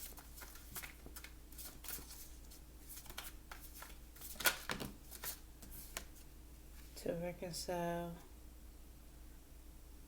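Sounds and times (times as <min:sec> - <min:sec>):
cards being shuffled: 0:00.0 - 0:06.2.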